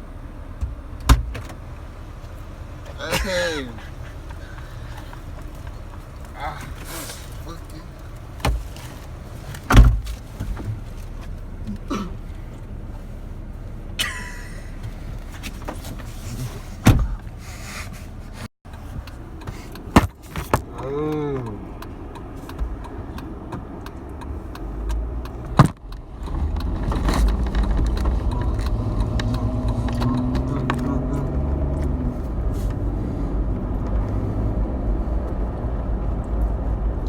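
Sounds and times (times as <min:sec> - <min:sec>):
car engine running: 0:00.0 - 0:37.0
car doors thumping shut: 0:00.6 - 0:01.6, 0:08.3 - 0:10.8, 0:14.8 - 0:17.4, 0:19.5 - 0:20.8
knocks and small rattles: 0:03.8 - 0:12.7.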